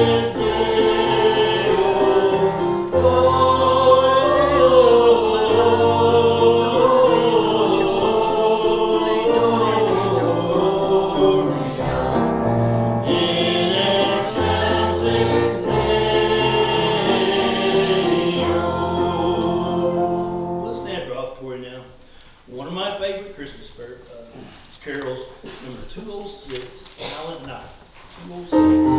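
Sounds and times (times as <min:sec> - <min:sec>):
congregation singing a hymn: 0:00.0 - 0:21.1
musical accompaniment: 0:00.0 - 0:21.1, 0:28.5 - 0:28.9.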